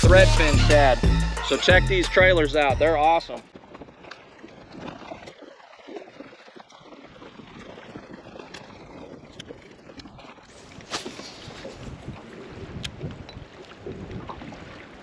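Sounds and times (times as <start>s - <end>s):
wind blowing across microphone: 10.7s - 14.9s.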